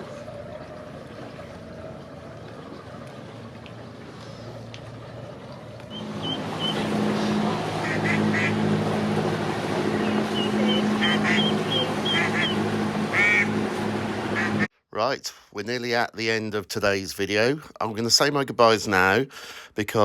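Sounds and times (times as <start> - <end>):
boat engine running: 0.0 - 14.7
ducks quacking: 5.9 - 14.7.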